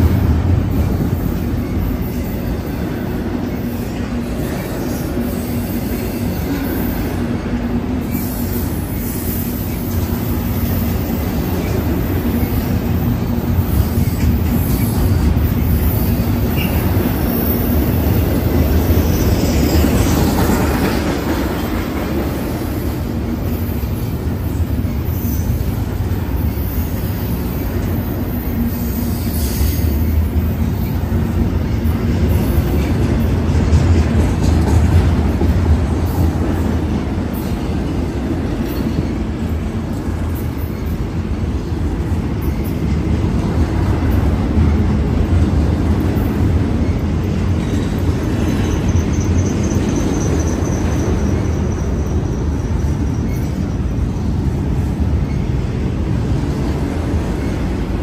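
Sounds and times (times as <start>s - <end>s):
freight train wheels rumbling: 0.0s - 58.0s
high wheel squeals: 46.8s - 54.3s.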